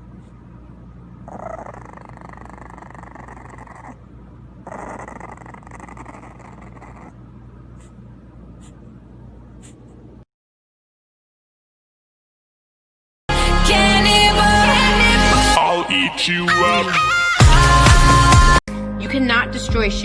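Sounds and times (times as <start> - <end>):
dog growling: 1.2 - 7.9.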